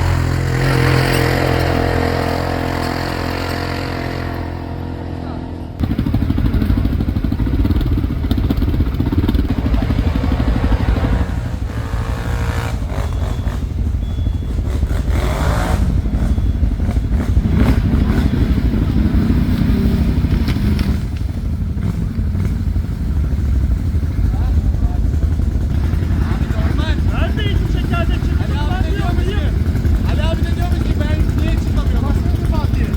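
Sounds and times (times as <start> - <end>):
atv engine revving: 0.0 - 32.9.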